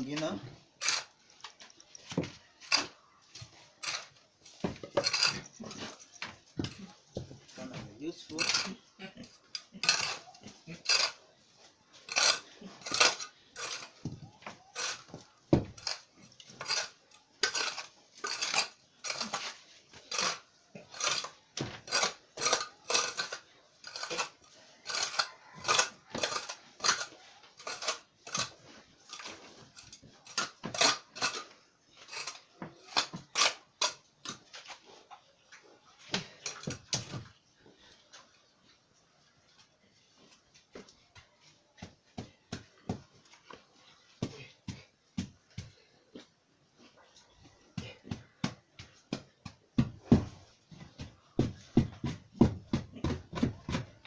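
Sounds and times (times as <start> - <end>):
hand tool tamping sand: 0.0 - 34.7, 47.7 - 54.0.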